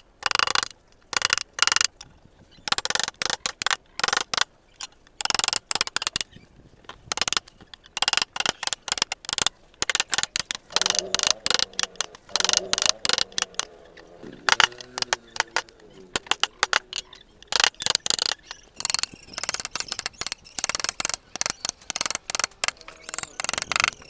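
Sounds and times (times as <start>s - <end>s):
chisel scraping wood: 7.2s - 24.0s.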